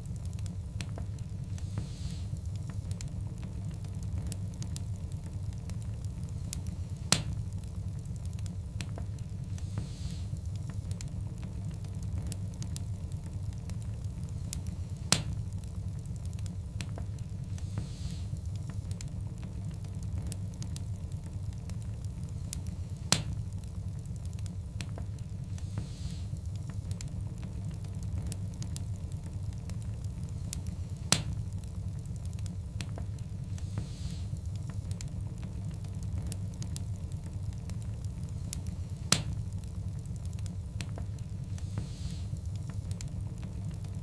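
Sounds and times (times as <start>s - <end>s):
fire crackling: 0.0s - 44.0s
wood fire burning: 0.0s - 44.0s
loud pop from fire: 31.1s - 31.4s, 39.1s - 39.4s.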